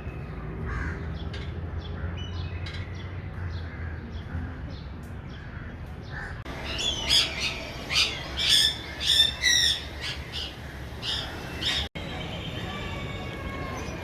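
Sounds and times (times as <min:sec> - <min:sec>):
birds squawking harshly: 0:00.7 - 0:11.9.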